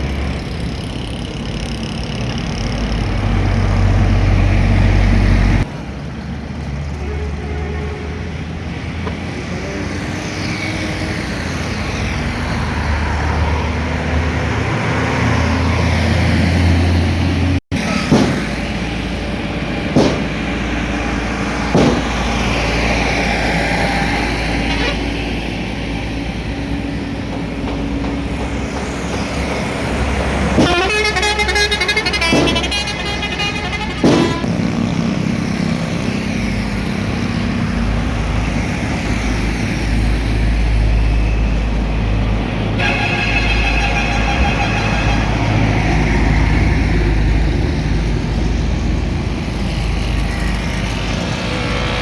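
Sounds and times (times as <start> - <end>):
road traffic rumble: 0.0 - 52.0
short sharp knocks: 20.0 - 20.4, 21.8 - 22.2, 27.3 - 31.0, 32.2 - 32.8, 34.0 - 34.5
vehicle horn honking: 30.6 - 34.7, 42.8 - 46.0.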